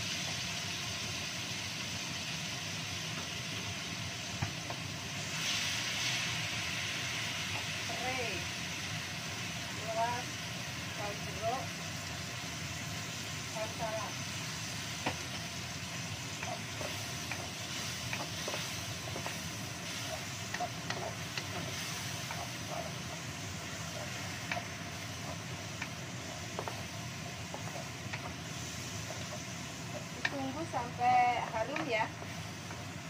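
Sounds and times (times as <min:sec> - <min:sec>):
paste sizzling in a wok: 0:00.0 - 0:33.0
spatula knocking and scraping pan: 0:14.9 - 0:15.5, 0:16.2 - 0:32.8.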